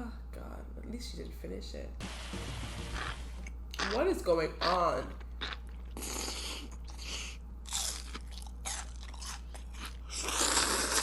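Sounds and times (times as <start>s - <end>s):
person chewing crunchy food: 5.2s - 11.0s.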